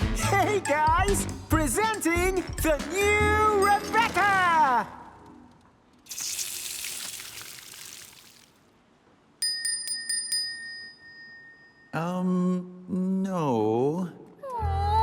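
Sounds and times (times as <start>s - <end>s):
small bell struck rapidly: 9.4s - 11.9s.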